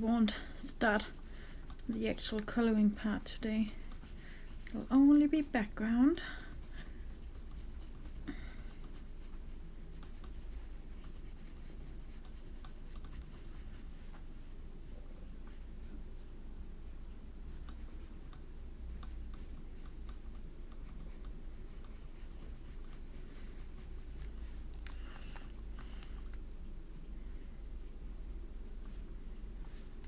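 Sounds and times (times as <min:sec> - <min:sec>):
low room hum: 0:00.0 - 0:30.0
brush scratching on paper: 0:00.7 - 0:14.2, 0:20.8 - 0:24.7.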